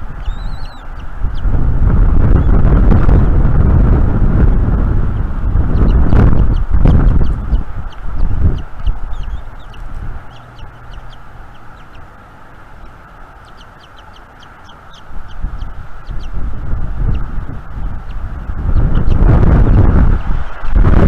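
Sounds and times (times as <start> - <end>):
wind buffeting microphone: 0.0 - 21.0
high bird chirps: 0.1 - 1.5, 5.5 - 12.2, 12.8 - 19.3.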